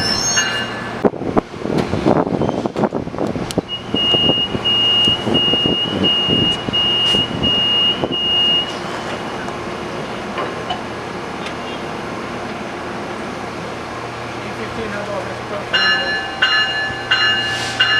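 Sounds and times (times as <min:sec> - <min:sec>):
train rumbling: 0:00.0 - 0:17.9
high electronic warning beeps: 0:03.7 - 0:09.4.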